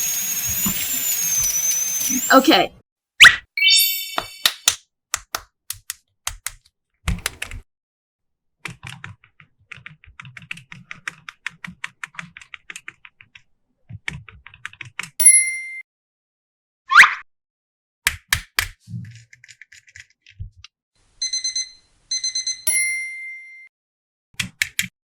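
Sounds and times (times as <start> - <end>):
electronic toy beep: 0.1 - 2.6.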